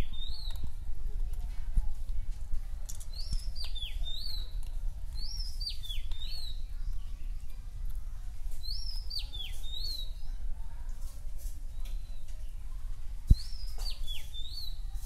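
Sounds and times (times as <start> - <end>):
songbird whistling: 0.0 - 0.6, 3.1 - 4.5, 5.2 - 6.7, 8.6 - 10.2, 13.3 - 14.8.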